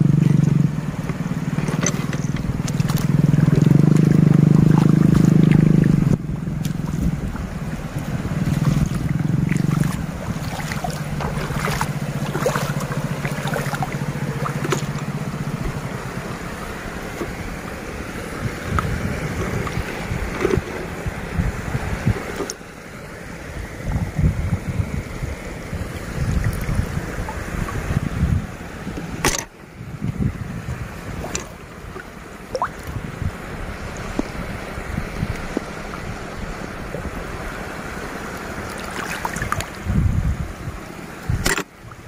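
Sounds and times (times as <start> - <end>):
wind buffeting microphone: 0.0 - 22.5, 23.5 - 42.0
sea waves washing: 0.0 - 42.0
steady low hum: 0.0 - 42.0
sharp clicks and knocks: 41.4 - 41.7.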